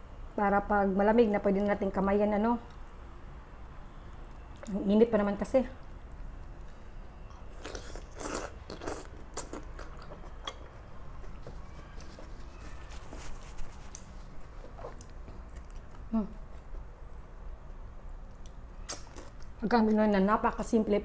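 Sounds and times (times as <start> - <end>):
person chewing food: 6.3 - 12.7, 13.6 - 16.8, 18.3 - 19.5.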